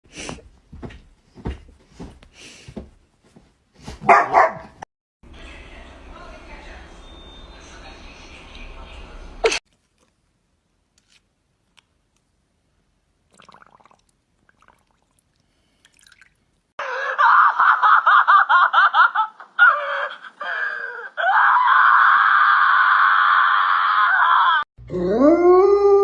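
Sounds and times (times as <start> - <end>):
dog howling: 24.9 - 26.0.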